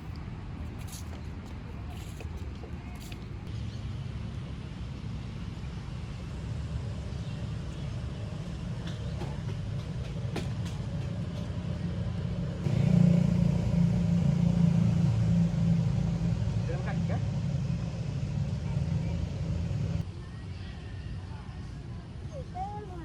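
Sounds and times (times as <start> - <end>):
low rumble: 11.6 - 20.0.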